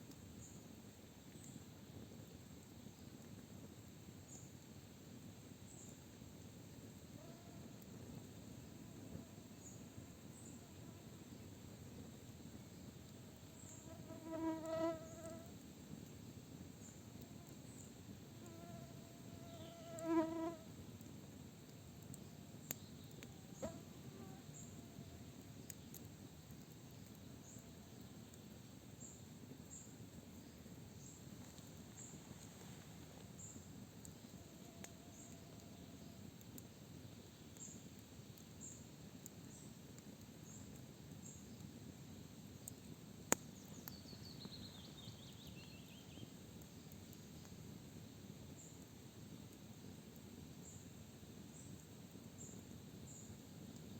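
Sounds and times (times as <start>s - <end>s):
bonfire crackles: 0.0s - 18.5s, 20.6s - 53.9s
faint forest background: 0.0s - 53.9s
flying insect buzzing: 18.4s - 20.7s.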